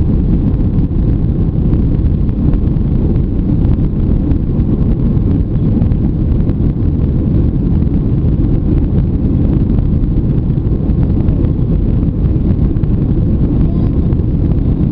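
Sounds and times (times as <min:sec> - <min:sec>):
airliner cabin jet engine noise: 0:00.0 - 0:14.9.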